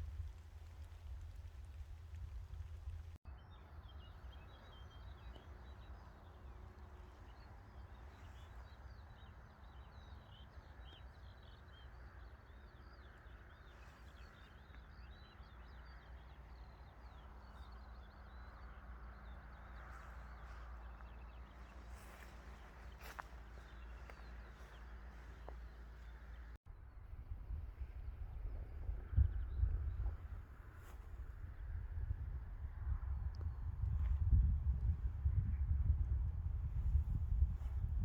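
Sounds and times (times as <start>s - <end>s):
birds chirping: 0.0s - 26.6s
low steady rumble: 0.0s - 38.0s.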